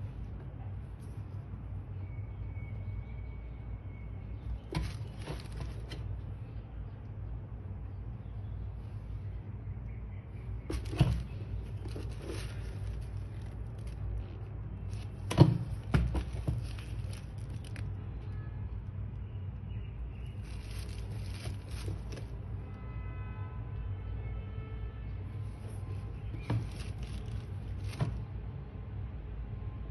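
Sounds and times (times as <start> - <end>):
box wrapping rustling: 4.7 - 6.1, 10.7 - 14.2, 14.9 - 17.8, 20.4 - 22.3, 26.4 - 28.2.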